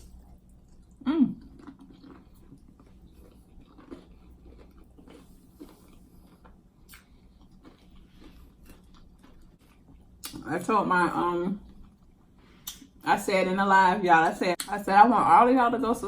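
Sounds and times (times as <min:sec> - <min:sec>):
person chewing food: 0:00.0 - 0:10.4.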